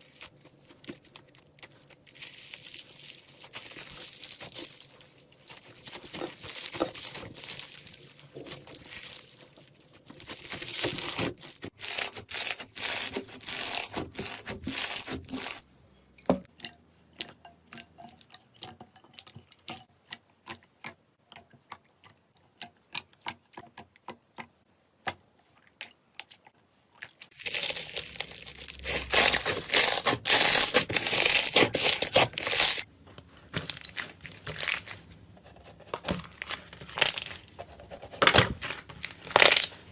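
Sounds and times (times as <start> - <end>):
slime crackling and popping: 27.3 - 32.9, 38.6 - 39.9.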